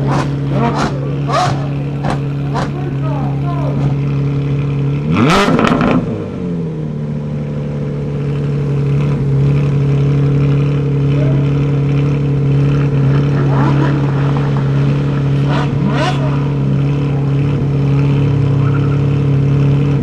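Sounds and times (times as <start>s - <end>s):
car engine passing by: 0.0s - 4.3s, 11.0s - 20.0s
car engine droning steadily: 0.0s - 20.0s.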